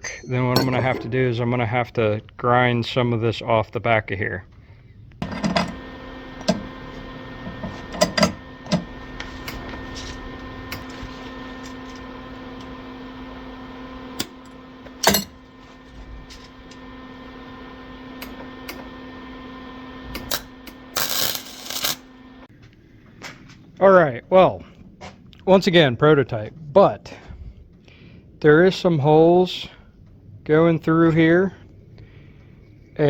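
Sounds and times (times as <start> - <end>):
welder electrical hum: 0.0 - 1.8, 5.2 - 22.5.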